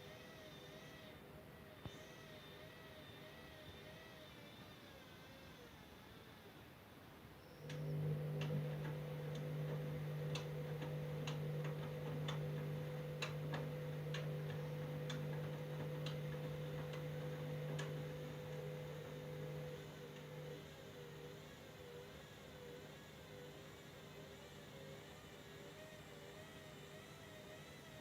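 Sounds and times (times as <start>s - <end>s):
washing machine motor humming: 7.6s - 28.0s
washing machine clicks: 7.7s - 20.5s.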